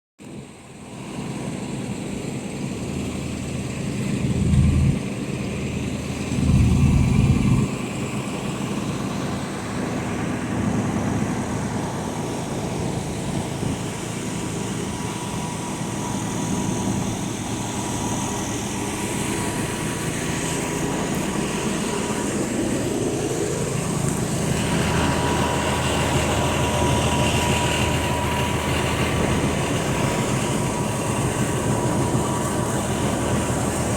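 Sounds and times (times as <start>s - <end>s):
bus diesel engine running: 0.6s - 33.9s
engine revving: 4.2s - 5.2s, 6.1s - 8.0s.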